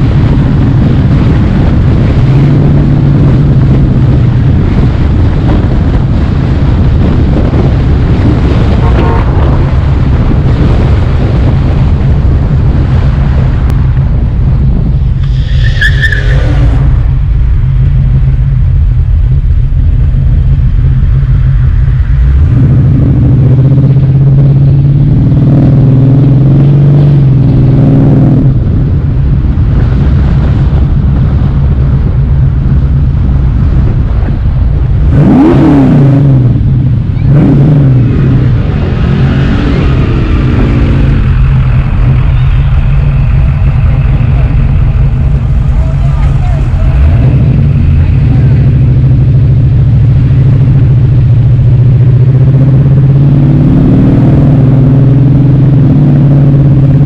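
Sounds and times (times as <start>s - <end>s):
car engine running: 0.0s - 57.0s
high squeal: 15.2s - 17.0s, 39.7s - 47.9s.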